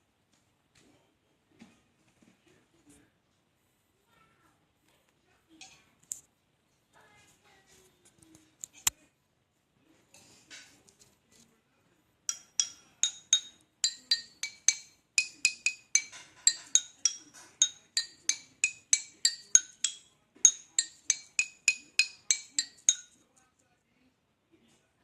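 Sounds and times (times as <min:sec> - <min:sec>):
charcoal pieces clinking together: 0:12.3 - 0:23.2.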